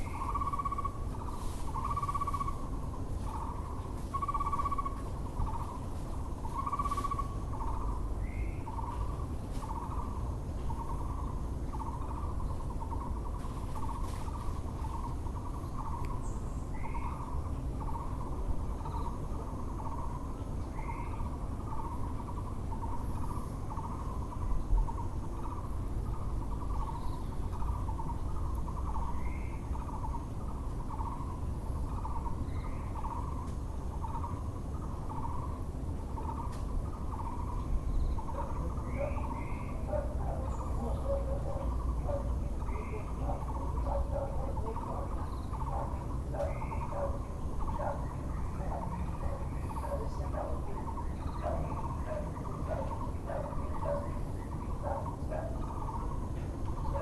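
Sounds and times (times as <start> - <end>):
low background hum: 0.0 - 57.0
barbet repeating its call: 38.2 - 57.0.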